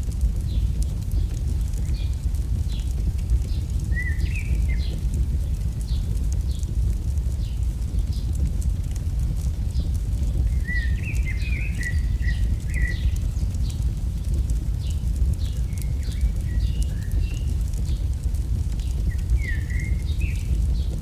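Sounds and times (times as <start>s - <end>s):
fire crackling and popping: 0.0s - 21.0s
steady low rumble: 0.0s - 21.0s
birds chirping: 0.4s - 21.0s.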